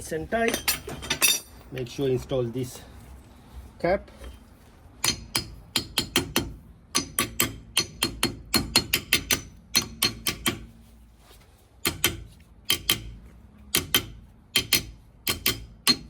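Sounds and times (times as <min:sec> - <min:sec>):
hammer tapping metal: 0:05.0 - 0:10.7, 0:11.8 - 0:16.0.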